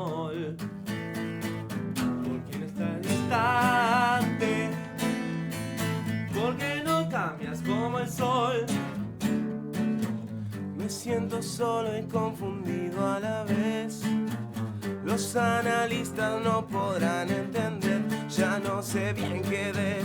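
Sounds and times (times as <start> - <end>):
strummed acoustic guitar: 0.0 - 20.0
person singing: 2.2 - 5.2, 6.3 - 9.0, 15.0 - 20.0.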